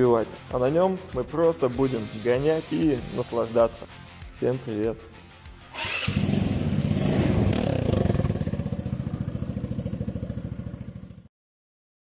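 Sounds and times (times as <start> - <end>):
scooter engine puttering: 5.8 - 11.3.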